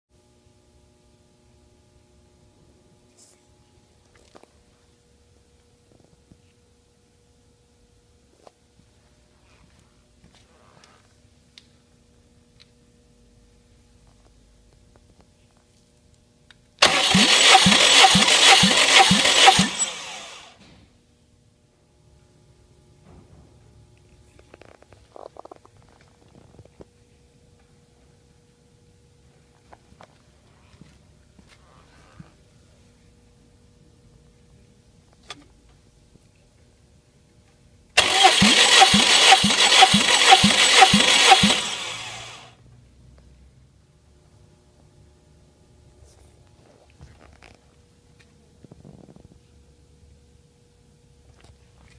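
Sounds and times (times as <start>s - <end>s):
starter motor cranking engine: 16.8s - 20.6s, 38.0s - 42.5s.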